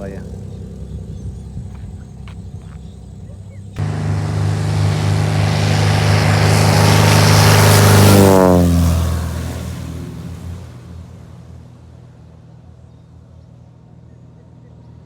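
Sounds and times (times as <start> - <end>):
propeller airplane passing: 3.8 - 14.6.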